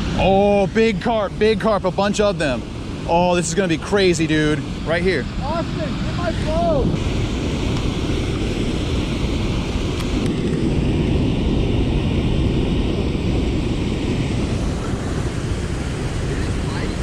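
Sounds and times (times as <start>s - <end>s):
waterfall rushing: 3.0s - 8.4s.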